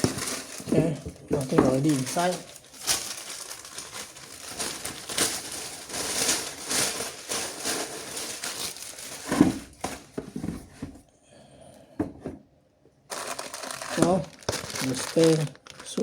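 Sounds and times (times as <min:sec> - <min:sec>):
cardboard packaging crinkling: 0:00.0 - 0:10.3, 0:13.1 - 0:16.0.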